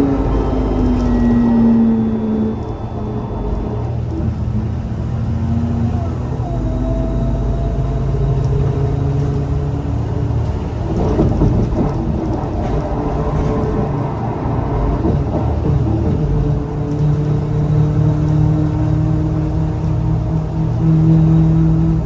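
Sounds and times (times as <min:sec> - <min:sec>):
thin whine: 0:00.0 - 0:08.8
bus engine drone: 0:00.0 - 0:22.0.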